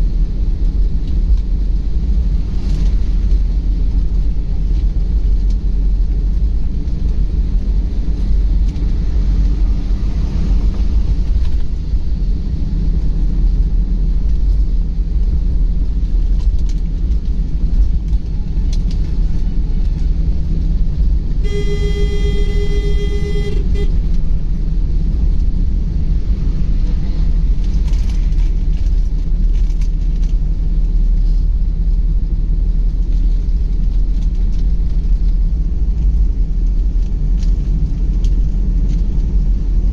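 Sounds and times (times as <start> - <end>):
car driving rumble: 0.0 - 39.9
vehicle horn: 21.4 - 24.2.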